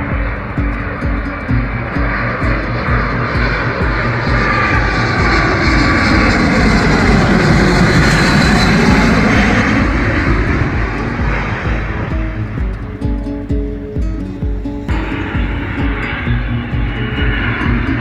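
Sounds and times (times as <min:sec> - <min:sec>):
airliner passing overhead: 0:00.0 - 0:18.0.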